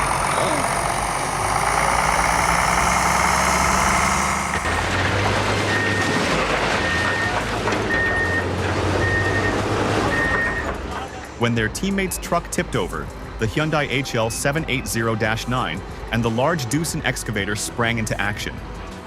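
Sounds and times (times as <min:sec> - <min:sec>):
reversing alarm beeping: 0:00.0 - 0:04.9, 0:05.6 - 0:10.7
heavy machinery running: 0:00.0 - 0:11.1
diesel engine running steadily: 0:00.0 - 0:11.4, 0:12.0 - 0:13.5, 0:14.6 - 0:16.3.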